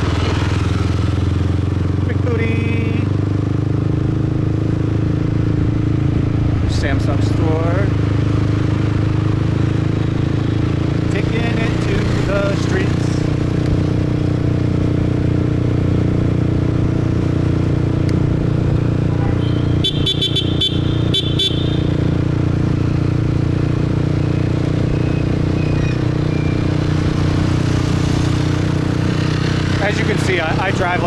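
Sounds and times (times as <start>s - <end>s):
motorbike engine running: 0.0s - 31.0s
road noise: 0.0s - 31.0s
vehicle horn short toots: 19.1s - 22.1s.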